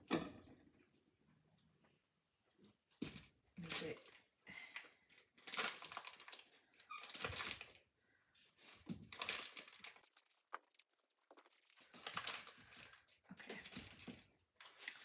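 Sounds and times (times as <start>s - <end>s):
plastic wrap crinkling: 5.4s - 7.8s, 8.6s - 15.0s.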